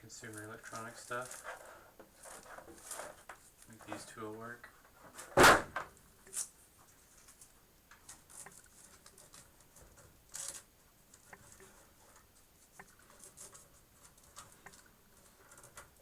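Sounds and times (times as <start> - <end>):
velcro and cables rustling: 0.2 - 4.1.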